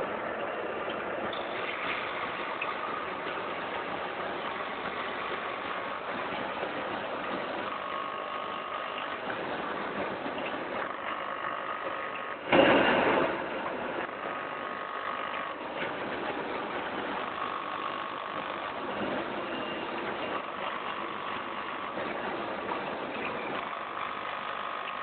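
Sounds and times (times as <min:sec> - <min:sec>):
packing machine running: 0:00.0 - 0:25.0
loud noisy burst: 0:10.8 - 0:16.2.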